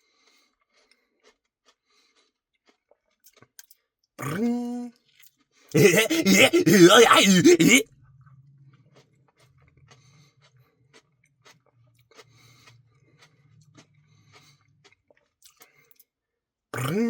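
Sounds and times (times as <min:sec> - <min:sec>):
faint chewing mouth clicks: 0:11.4 - 0:16.0.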